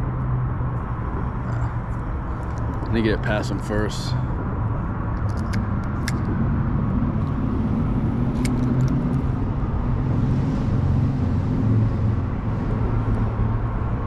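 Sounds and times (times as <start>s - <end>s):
road traffic rumble: 0.0s - 14.0s
sharp clicks: 5.2s - 6.3s.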